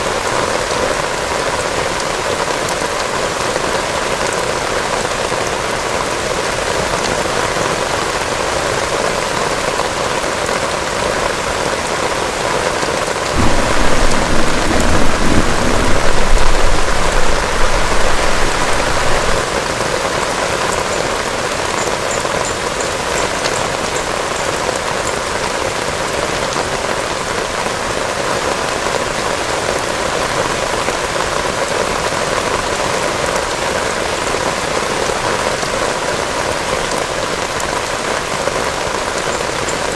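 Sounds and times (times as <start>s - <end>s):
heavy rain: 0.0s - 39.9s
low thunder rumbling: 13.4s - 19.5s.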